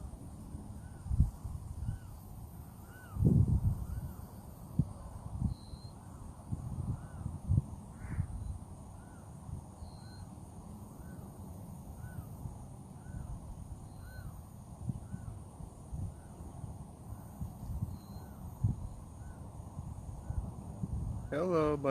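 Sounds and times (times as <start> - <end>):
bird calling: 1.8 - 4.4, 10.9 - 12.4, 13.0 - 15.4.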